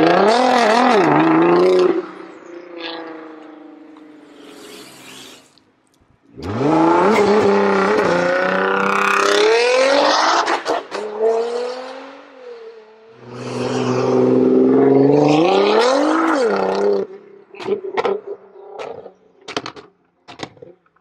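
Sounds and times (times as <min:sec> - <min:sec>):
car engine accelerating: 0:06.3 - 0:17.0.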